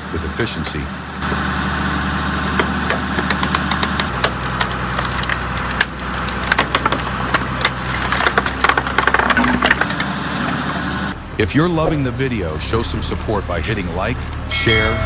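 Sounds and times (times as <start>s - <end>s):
engine and hydraulic drone: 0.0s - 15.0s
logs cracking apart: 0.6s - 11.2s.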